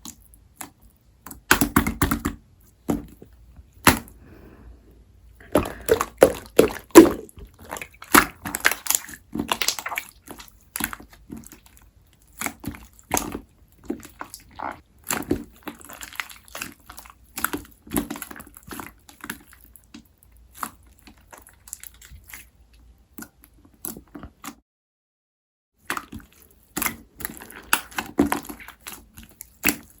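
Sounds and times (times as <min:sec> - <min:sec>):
slime squishing: 0:05.4 - 0:24.6, 0:25.8 - 0:30.0.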